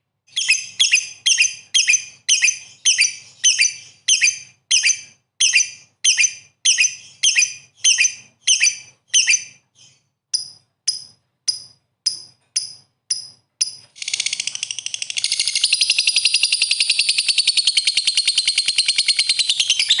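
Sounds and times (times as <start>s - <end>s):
bird sharp high chirps: 0.3s - 20.0s
bird fast chattering trill: 14.0s - 20.0s.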